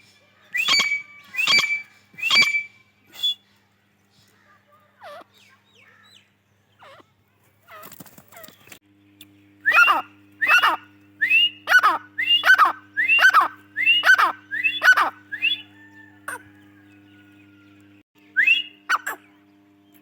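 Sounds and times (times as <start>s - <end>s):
francolin calling: 9.6s - 16.6s.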